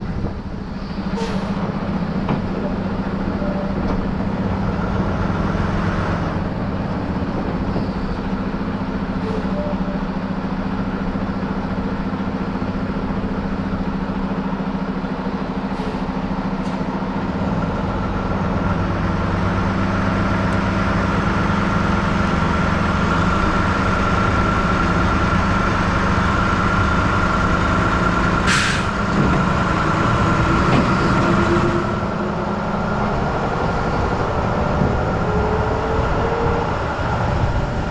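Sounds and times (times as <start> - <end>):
truck engine running: 0.0 - 37.9.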